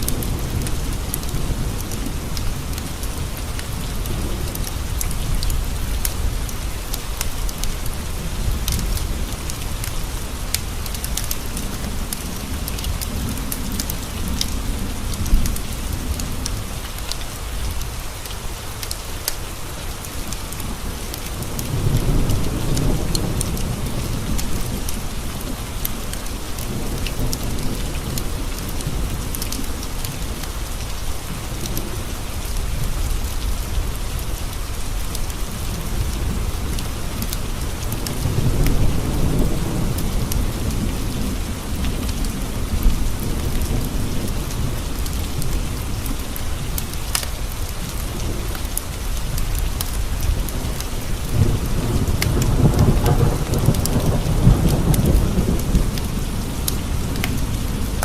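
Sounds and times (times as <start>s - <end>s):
rain pattering on windows: 0.0s - 58.0s
thunder rumbling: 50.0s - 58.0s.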